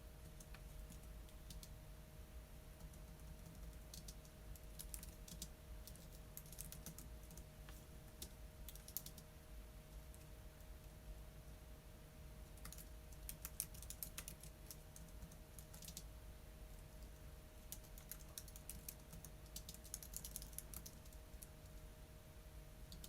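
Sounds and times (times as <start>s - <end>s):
faint steady hum: 0.0s - 23.0s
keyboard typing: 0.2s - 1.7s, 2.8s - 7.5s, 8.2s - 9.3s, 12.6s - 16.1s, 17.0s - 21.8s.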